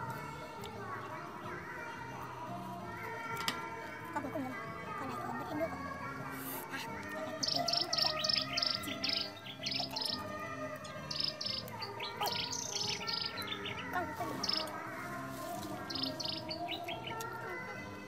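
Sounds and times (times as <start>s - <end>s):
background music: 0.0s - 18.0s
bird chirping: 7.4s - 14.8s, 15.5s - 17.3s.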